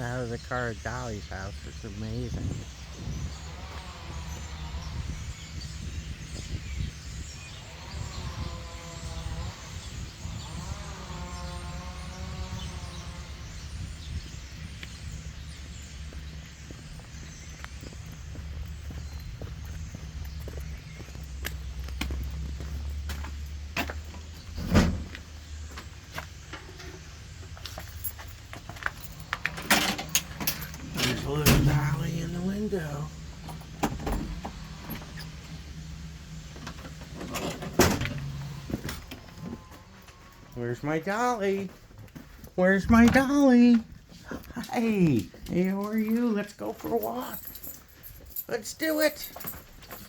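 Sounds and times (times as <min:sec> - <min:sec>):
low hum: 0:00.0 - 0:40.9
steady low rumble: 0:00.0 - 0:41.1
birds chirping: 0:00.0 - 0:50.0.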